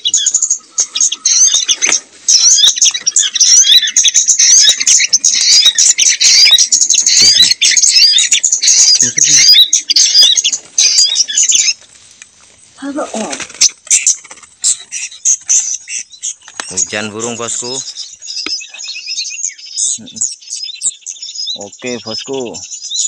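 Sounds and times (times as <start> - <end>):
small songbirds chirping: 0.0 - 23.0.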